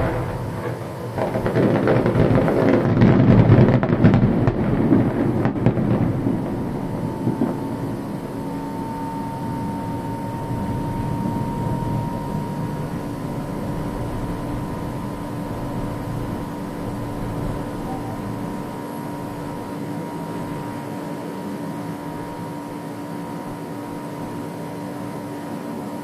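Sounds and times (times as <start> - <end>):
low rumble: 0.0 - 1.5, 3.2 - 19.7
fireworks bursting: 0.0 - 19.6
crackle of fireworks: 0.0 - 24.7
faint steady tone: 6.3 - 26.0.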